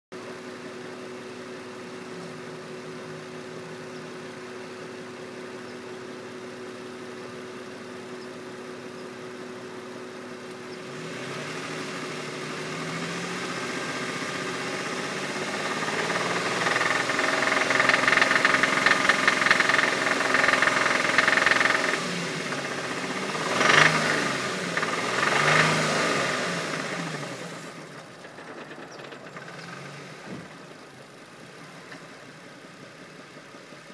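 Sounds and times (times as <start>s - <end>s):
car engine idling and revving: 0.2s - 33.9s.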